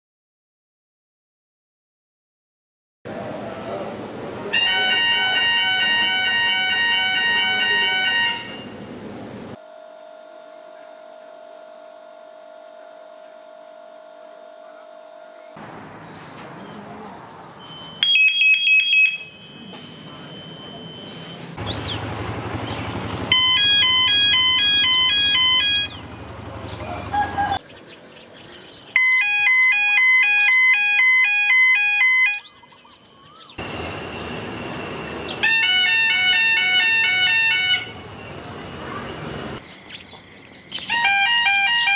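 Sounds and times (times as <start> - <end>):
bird chirps: 15.4 - 18.1, 18.8 - 23.3, 32.3 - 35.4, 38.2 - 41.0
alternating electronic beeping tones: 15.6 - 21.6, 23.3 - 26.2.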